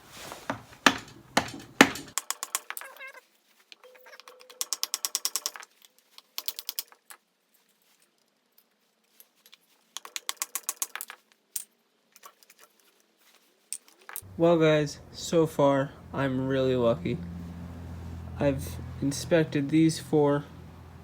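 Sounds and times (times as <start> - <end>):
sharp metallic knocks: 0.4 - 2.2.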